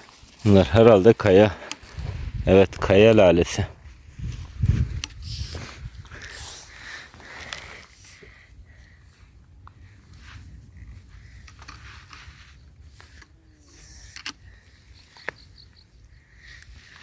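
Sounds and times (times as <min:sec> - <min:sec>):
wind rumble on microphone: 0:01.9 - 0:06.8, 0:08.1 - 0:17.0
small clicks: 0:13.0 - 0:14.4.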